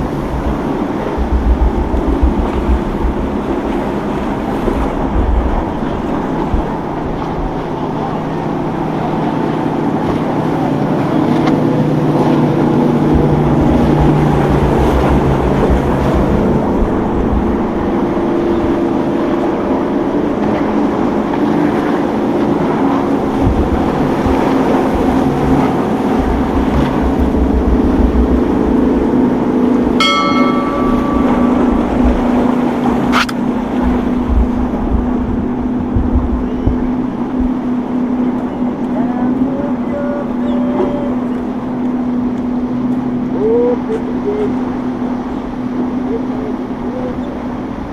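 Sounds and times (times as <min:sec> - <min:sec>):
wind buffeting microphone: 0:00.0 - 0:40.5
motorboat engines running: 0:00.0 - 0:47.9
short ringing tone: 0:30.0 - 0:33.3
sharp click: 0:33.1 - 0:33.4.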